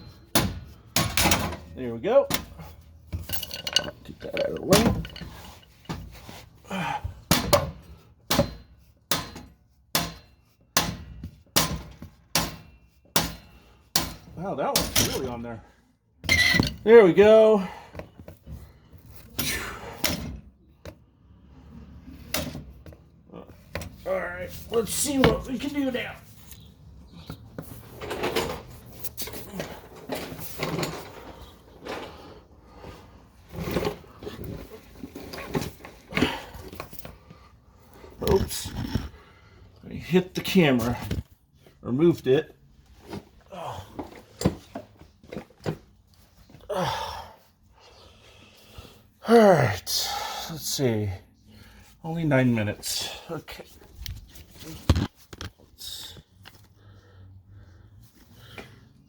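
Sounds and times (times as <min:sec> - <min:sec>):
hand tools clanking and scraping: 0:00.0 - 0:20.4, 0:21.8 - 0:39.4.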